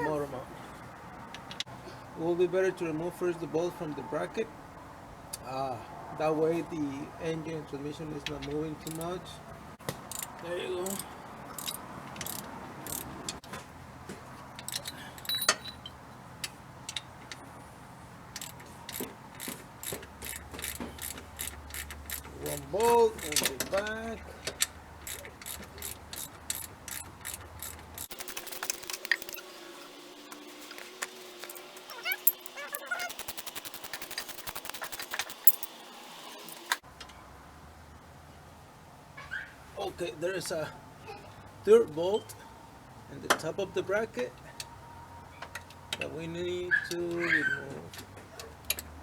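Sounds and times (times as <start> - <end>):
ratchet wrench clicking: 10.1 - 11.0, 11.6 - 13.1, 18.3 - 23.9, 24.6 - 29.4, 32.0 - 35.7
metal hand tools clinking: 14.6 - 16.0, 19.8 - 24.0, 25.0 - 29.6, 30.7 - 36.8
sharp ringing metallic clink: 15.2 - 16.0.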